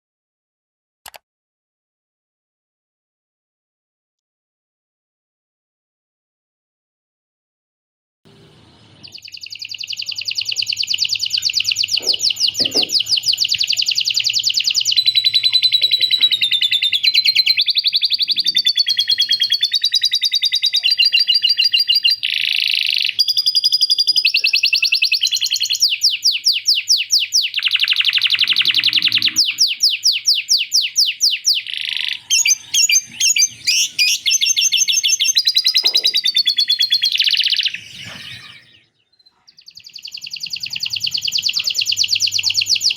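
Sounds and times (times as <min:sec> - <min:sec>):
canary singing trills: 0:08.8 - 0:42.9.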